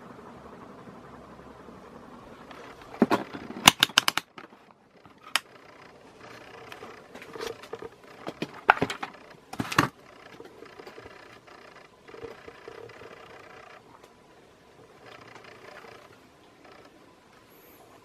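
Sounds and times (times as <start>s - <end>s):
faint steady hum: 0.0s - 18.0s
sharp clicks and knocks: 2.5s - 14.2s.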